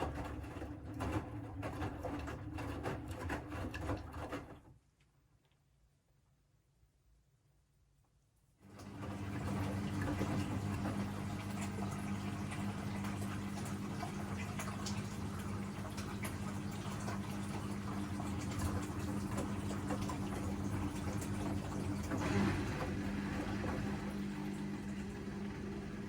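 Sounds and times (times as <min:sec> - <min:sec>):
washing machine running: 0:00.0 - 0:04.9, 0:08.6 - 0:26.0
water splashing: 0:09.5 - 0:26.0.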